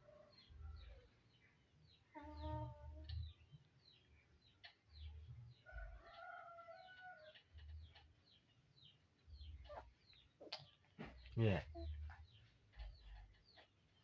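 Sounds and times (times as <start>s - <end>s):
birds chirping: 0.1s - 14.0s.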